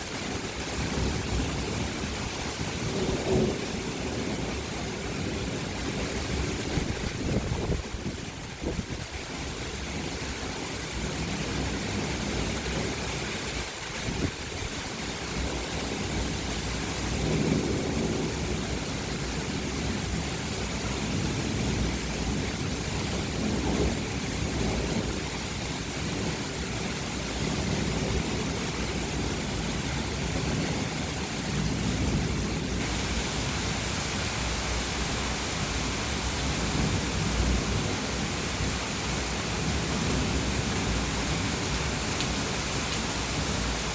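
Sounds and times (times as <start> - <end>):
thunder rumbling: 0.0 - 9.1, 21.1 - 43.9
rain hissing: 0.0 - 43.9.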